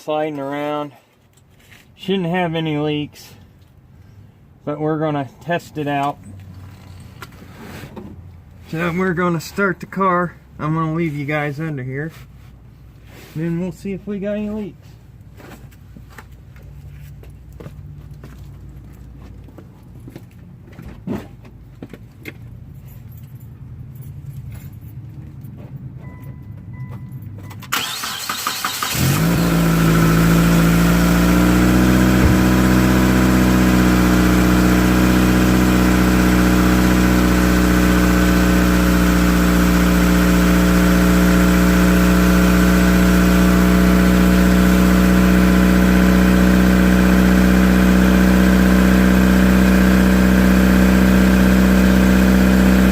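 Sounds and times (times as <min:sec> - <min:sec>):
car engine starting and idling: 0:24.4 - 0:52.9.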